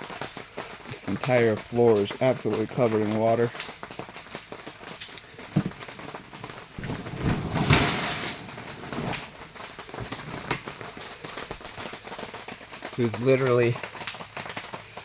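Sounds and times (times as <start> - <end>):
tarp crinkling: 0.0 - 15.0
water sloshing: 5.2 - 10.8.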